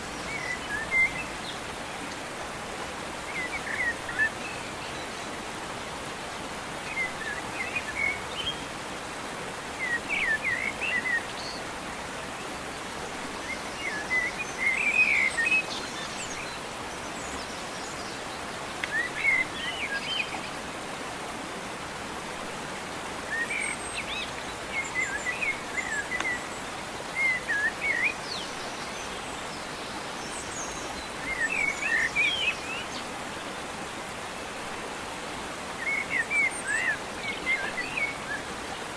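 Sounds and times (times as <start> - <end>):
songbird chirping: 0.0 - 2.2, 23.2 - 33.7, 35.7 - 38.9
steady background hiss: 0.0 - 38.9.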